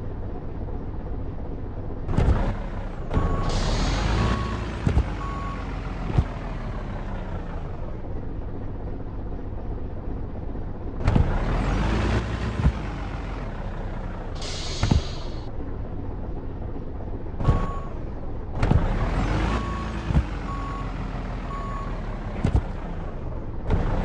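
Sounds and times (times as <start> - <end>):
truck engine rumbling: 0.0 - 24.0
air hiss bursts: 14.4 - 15.4
short beep: 17.4 - 18.0.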